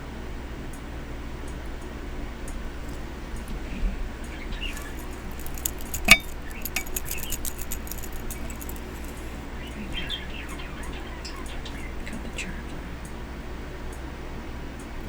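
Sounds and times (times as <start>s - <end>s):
small hard items clinking: 4.6s - 9.4s
ringing clink: 4.7s - 9.4s.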